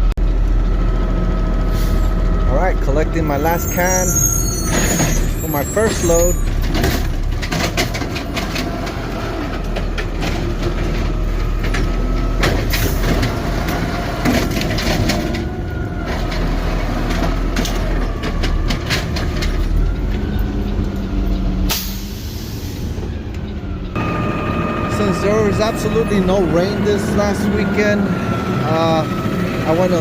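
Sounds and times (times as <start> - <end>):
truck engine running: 0.0 - 30.0
hydraulic whine: 12.0 - 30.0.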